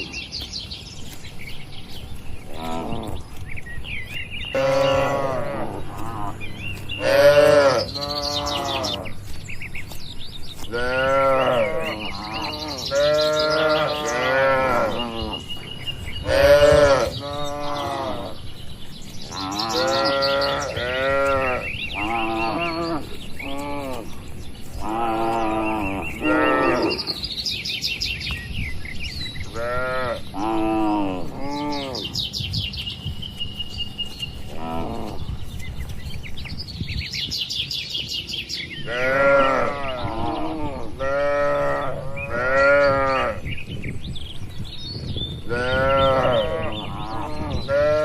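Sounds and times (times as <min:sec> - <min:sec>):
small birds chirping: 0:00.0 - 0:48.0
cattle mooing: 0:02.5 - 0:03.2, 0:04.5 - 0:09.2, 0:10.7 - 0:15.5, 0:16.2 - 0:18.4, 0:19.3 - 0:24.2, 0:24.8 - 0:27.1, 0:38.9 - 0:43.4.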